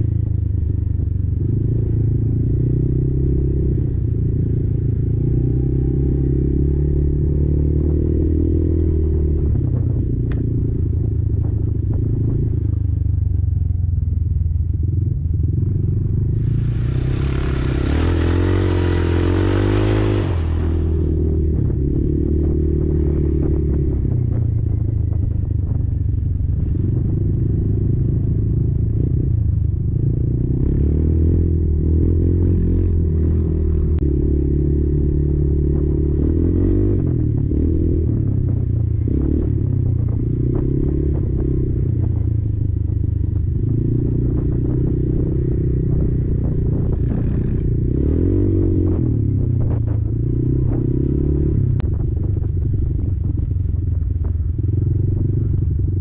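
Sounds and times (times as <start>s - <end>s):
quad engine revving: 16.2s - 23.7s.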